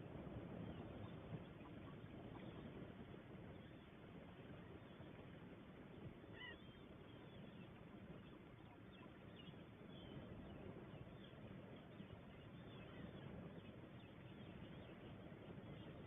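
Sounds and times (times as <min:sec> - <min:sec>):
low background rumble: 0:00.0 - 0:16.0
distant waterfowl calls: 0:00.4 - 0:05.2, 0:06.2 - 0:10.2.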